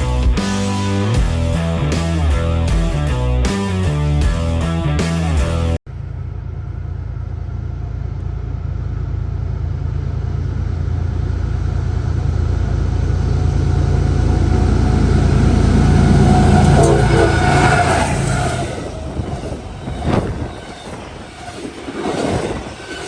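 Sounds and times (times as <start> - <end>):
train rumbling: 5.6 - 23.0.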